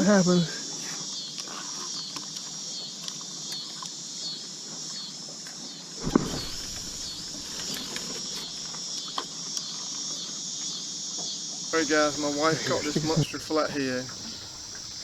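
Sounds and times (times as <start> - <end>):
insects buzzing: 0.0 - 15.0
dull thump: 6.0 - 8.7.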